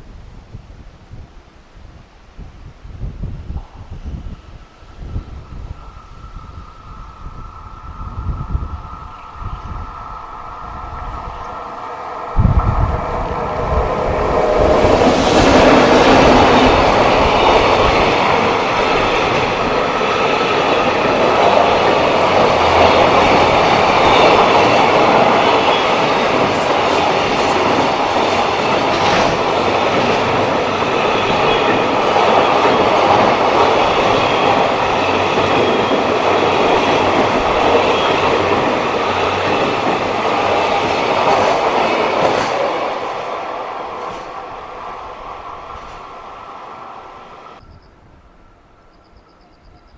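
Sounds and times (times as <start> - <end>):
freight train wheels clattering: 11.1 - 46.3.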